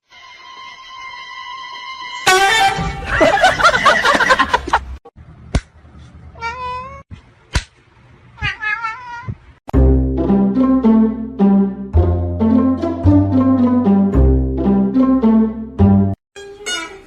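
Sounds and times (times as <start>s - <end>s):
cat meowing and yowling: 6.4s - 7.0s, 8.4s - 9.4s
music with low plucked notes: 9.7s - 16.2s.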